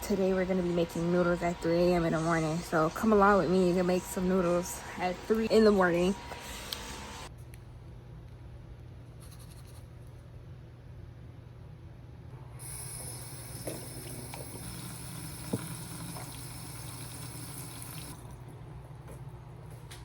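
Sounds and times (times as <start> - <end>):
low steady hum: 0.0 - 20.0
tap running water into a pot: 13.5 - 18.3.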